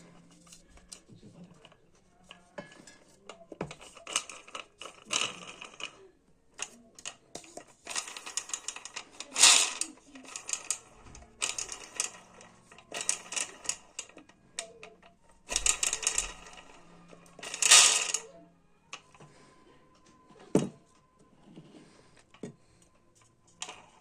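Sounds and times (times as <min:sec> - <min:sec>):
metal parts clicking and clattering: 0:00.2 - 0:06.0, 0:06.6 - 0:18.3.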